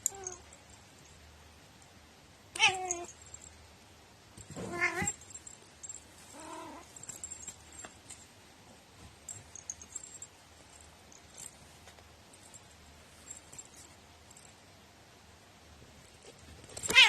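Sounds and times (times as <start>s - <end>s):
cat meowing: 2.6s - 3.1s, 4.6s - 5.2s.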